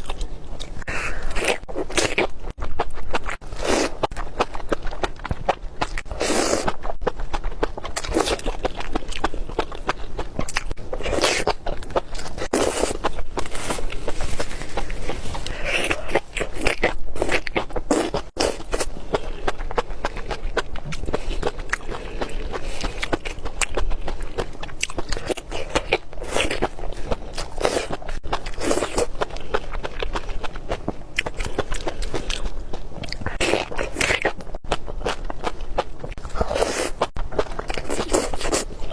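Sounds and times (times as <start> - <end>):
wet chewing with mouth clicks: 0.0 - 38.9.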